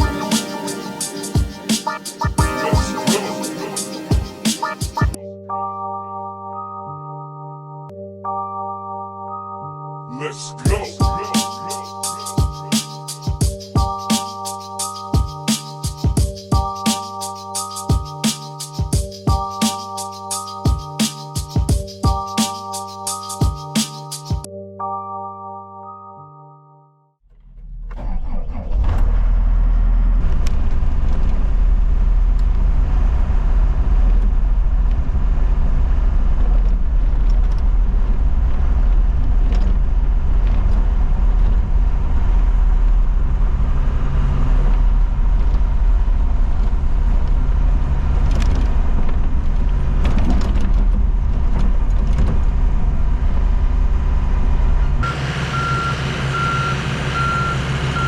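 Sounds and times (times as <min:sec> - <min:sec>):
diesel truck engine rumbling: 0:54.7 - 0:58.0
reversing alarm beeping: 0:55.0 - 0:58.0.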